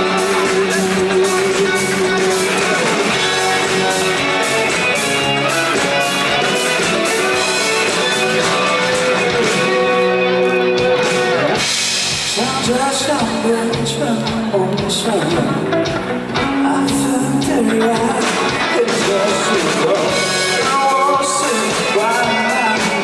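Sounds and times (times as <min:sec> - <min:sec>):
electric guitar: 0:00.0 - 0:23.0
live rock band playing: 0:00.0 - 0:23.0
steady drums: 0:00.0 - 0:23.0.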